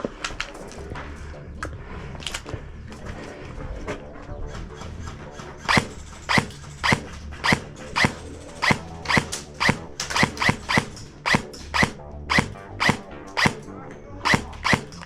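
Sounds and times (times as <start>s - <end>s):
airsoft gun shots: 5.7s - 13.7s, 14.3s - 15.0s.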